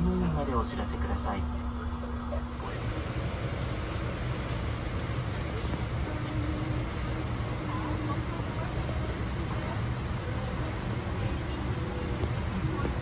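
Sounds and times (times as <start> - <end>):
cabin ventilation rumble: 0.0 - 13.0
faint passenger voices: 0.0 - 13.0.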